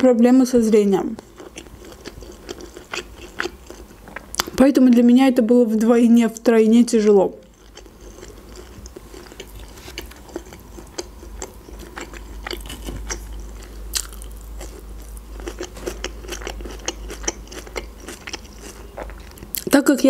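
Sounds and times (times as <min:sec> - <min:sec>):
person crunching bell pepper: 0:01.1 - 0:04.6, 0:07.4 - 0:19.7.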